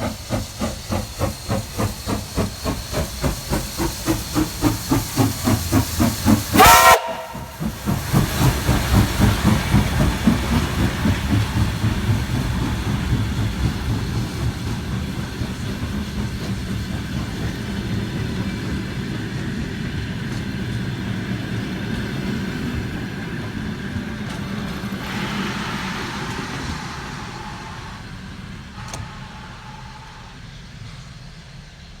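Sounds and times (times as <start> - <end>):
steam locomotive chuffing: 0.0 - 32.0
train whistle blast: 6.5 - 8.0, 25.1 - 30.5.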